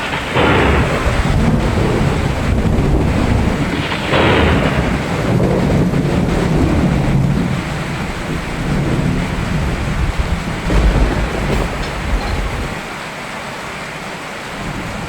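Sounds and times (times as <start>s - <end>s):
heavy rain: 10.7s - 12.8s
rolling thunder: 10.7s - 12.9s.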